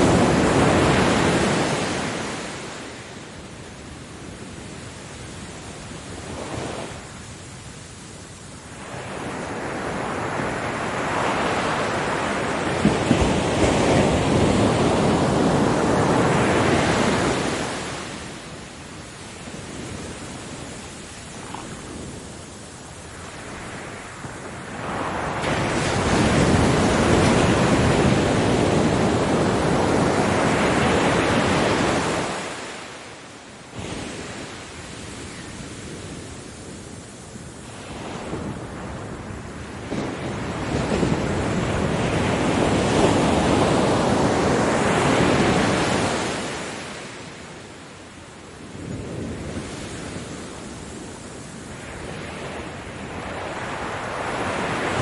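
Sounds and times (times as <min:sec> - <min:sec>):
hiss of receding water: 0:00.0 - 0:55.0
ocean waves breaking on beach: 0:00.0 - 0:55.0.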